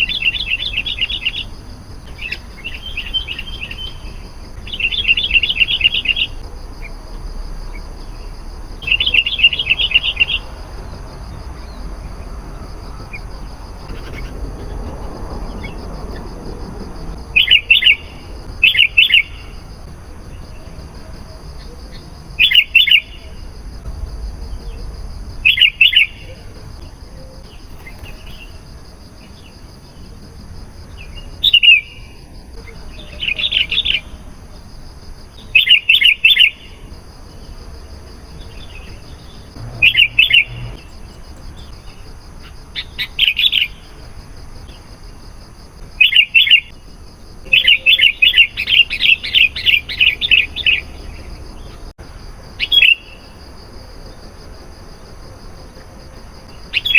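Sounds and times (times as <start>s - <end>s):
bulbul chirping: 39.6s - 41.0s.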